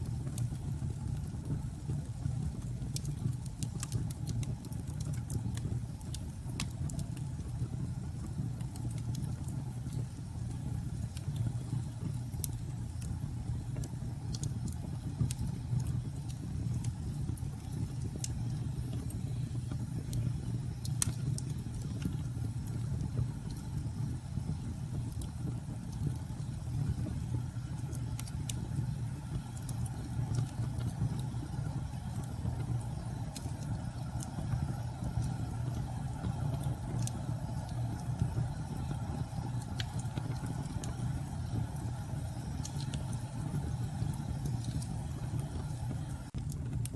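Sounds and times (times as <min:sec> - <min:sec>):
wood fire crackling and popping: 0:00.0 - 0:46.9
low rumble of storm wind: 0:09.4 - 0:46.9.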